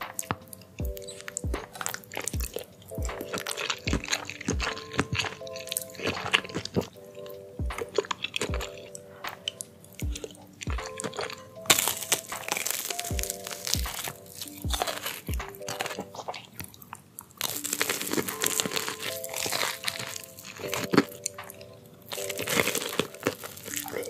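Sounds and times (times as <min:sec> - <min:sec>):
background music with steady beat: 0:00.0 - 0:16.8, 0:17.4 - 0:24.0
wet chewing: 0:00.1 - 0:24.0
crunchy bite into fried snack: 0:11.1 - 0:16.0, 0:17.4 - 0:21.1.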